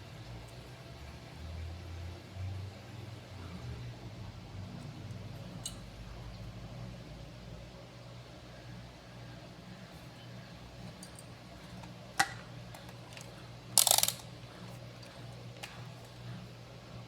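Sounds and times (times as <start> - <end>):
washing machine motor humming: 0.0 - 17.0.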